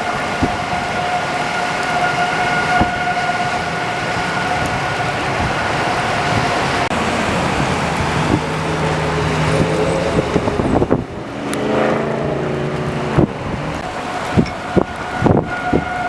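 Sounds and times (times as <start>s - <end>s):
road traffic: 0.0s - 16.0s
storm wind on microphone: 0.0s - 16.0s
droning pitched tone: 6.9s - 16.0s.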